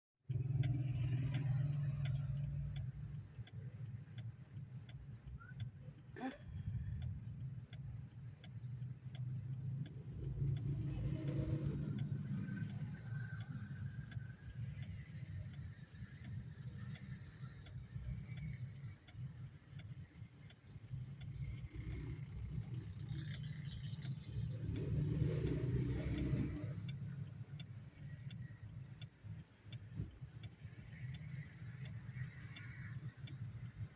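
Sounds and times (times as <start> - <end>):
vehicles passing: 0.3 - 33.9.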